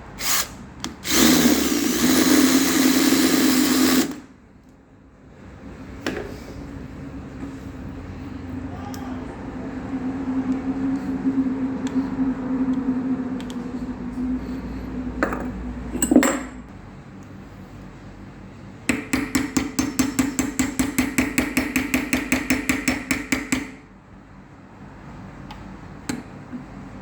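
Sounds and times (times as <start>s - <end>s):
metal tool humming: 0.2s - 4.2s.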